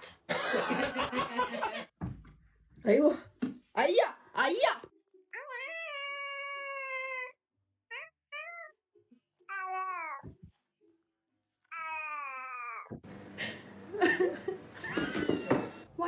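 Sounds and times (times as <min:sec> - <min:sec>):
cat meowing: 0:05.3 - 0:08.8, 0:09.5 - 0:10.5, 0:11.6 - 0:13.0.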